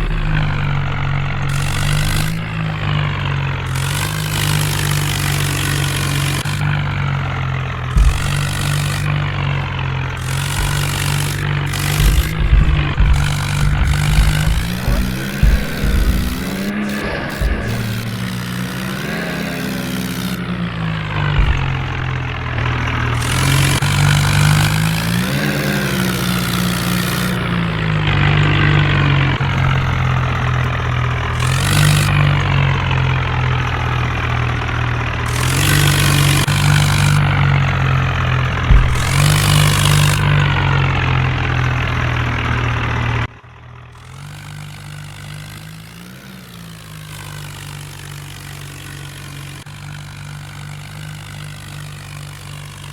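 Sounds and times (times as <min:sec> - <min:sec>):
tractor diesel engine revving: 0:00.0 - 0:52.9
rushing noise: 0:08.0 - 0:24.3.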